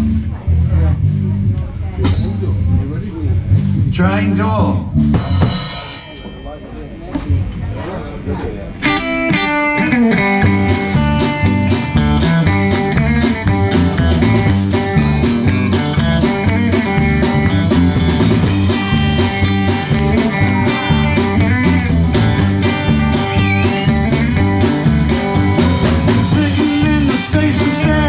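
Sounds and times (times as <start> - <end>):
bass guitar: 0.0 - 6.4, 7.1 - 28.0
drums: 0.0 - 28.0
electric guitar: 8.6 - 28.0.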